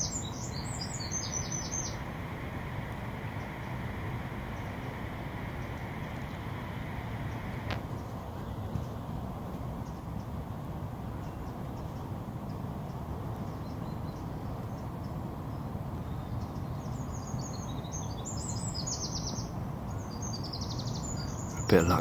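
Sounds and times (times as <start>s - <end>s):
small birds chirping: 0.0s - 9.1s, 11.1s - 22.0s
low outdoor rumble: 0.8s - 9.8s.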